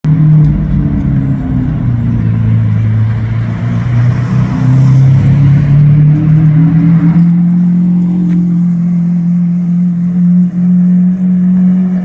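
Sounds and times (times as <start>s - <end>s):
car engine low drone: 0.0s - 12.0s.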